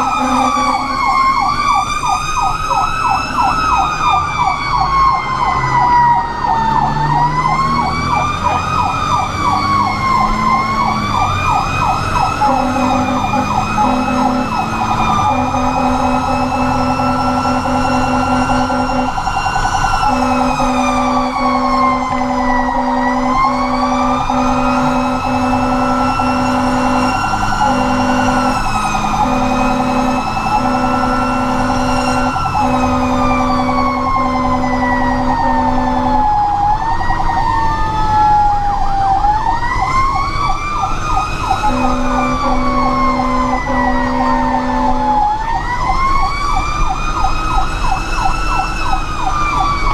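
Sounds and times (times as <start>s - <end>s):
fire engine horn blasts: 0.0s - 2.6s, 5.8s - 36.8s, 41.2s - 46.2s
fire engine siren wailing: 0.0s - 49.9s
truck engine: 0.0s - 49.9s.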